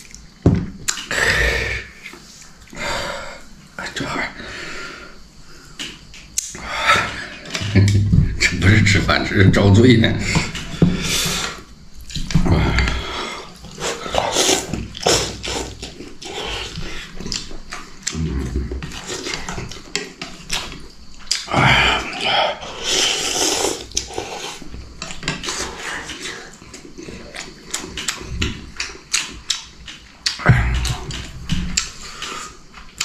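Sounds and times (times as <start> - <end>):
man chewing: 0.0 - 3.7, 5.2 - 8.6, 10.2 - 33.0
man slurping noodles: 13.1 - 16.8, 22.8 - 24.6.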